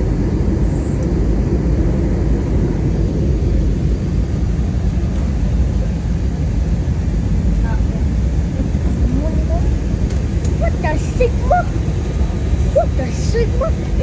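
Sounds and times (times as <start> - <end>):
rushing air: 0.0 - 7.5, 9.6 - 14.0
airliner engines rumbling: 0.0 - 14.0.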